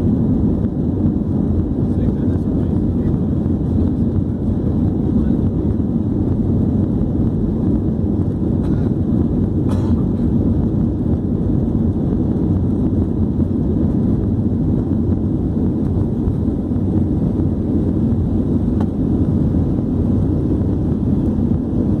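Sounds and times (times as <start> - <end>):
airliner engines rumbling: 0.0 - 22.0
rushing air: 0.0 - 22.0.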